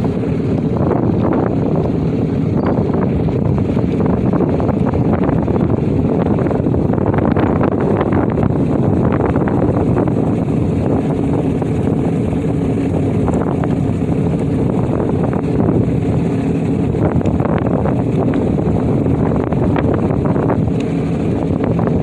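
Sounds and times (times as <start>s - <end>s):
jet ski engine running: 0.0s - 22.0s
wind buffeting microphone: 0.0s - 22.0s.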